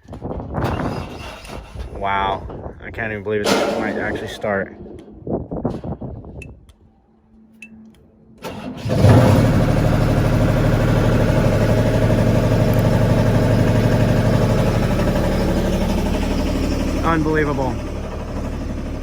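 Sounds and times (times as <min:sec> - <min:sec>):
lift engine cranking and idling: 0:08.4 - 0:19.0.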